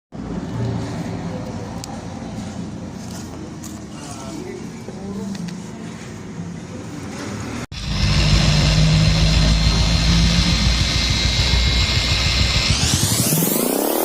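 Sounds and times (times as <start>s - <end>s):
motorcycle engine idling: 7.7s - 13.4s.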